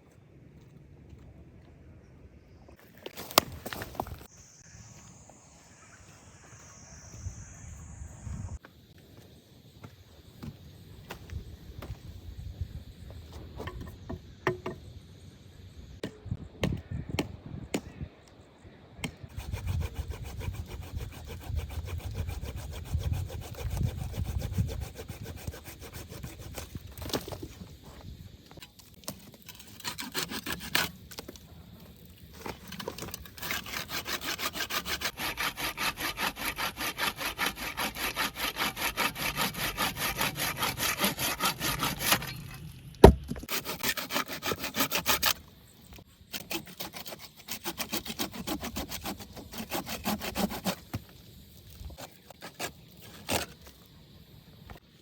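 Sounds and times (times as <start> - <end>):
hand saw cutting wood: 19.3 - 27.4, 29.0 - 31.3, 32.4 - 45.4, 46.3 - 51.1, 51.8 - 53.7.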